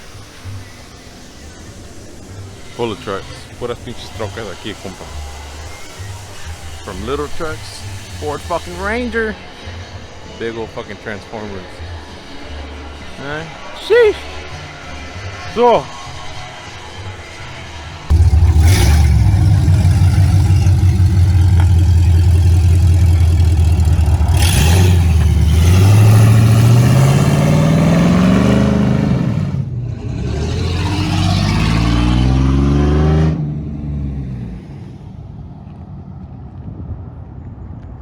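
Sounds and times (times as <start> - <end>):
truck engine revving: 18.0 - 34.9.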